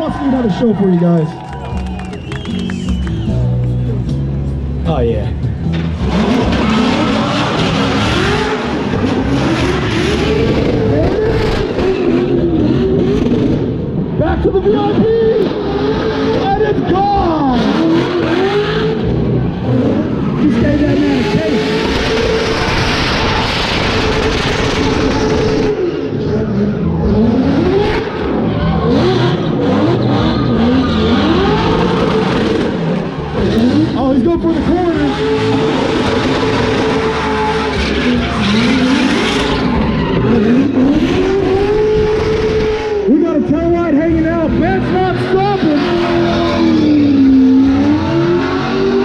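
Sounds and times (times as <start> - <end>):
car engine revving hard: 5.7 - 49.0.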